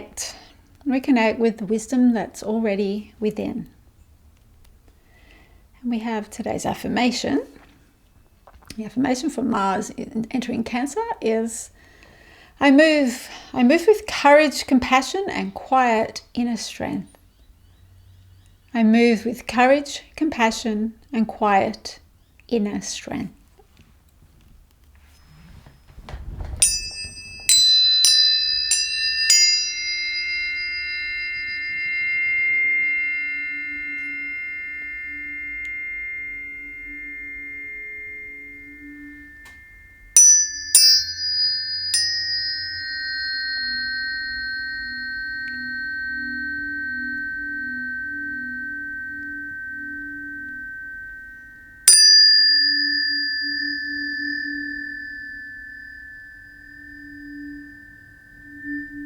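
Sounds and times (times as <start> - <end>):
tuning forks ringing: 25.0 - 59.0.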